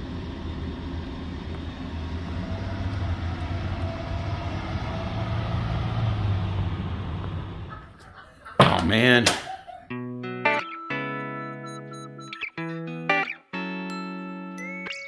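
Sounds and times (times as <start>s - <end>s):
vehicle engine low hum: 0.0s - 8.0s.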